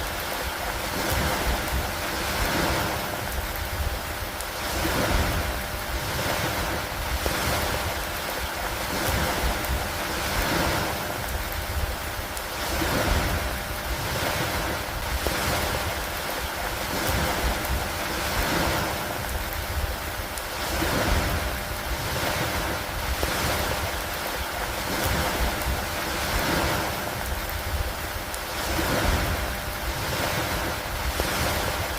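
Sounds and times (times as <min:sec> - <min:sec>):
rain over water: 0:00.0 - 0:31.9
wind: 0:00.0 - 0:31.9.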